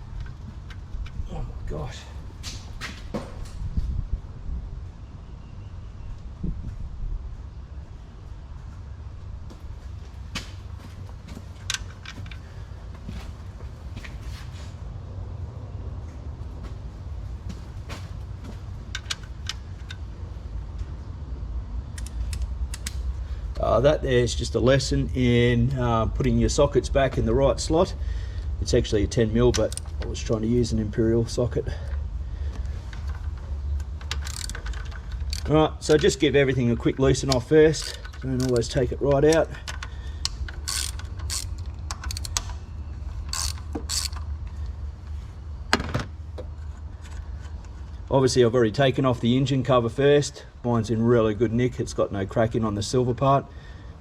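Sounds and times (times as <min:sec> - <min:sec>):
low steady rumble: 0:00.0 - 0:54.0
steady low hum: 0:00.0 - 0:54.0
socket ratchet clicking: 0:33.9 - 0:36.2, 0:37.2 - 0:44.3.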